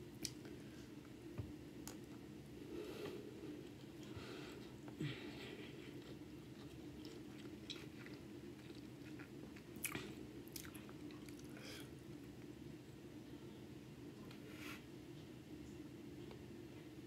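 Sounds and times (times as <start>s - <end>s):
chewing food: 3.0s - 11.6s.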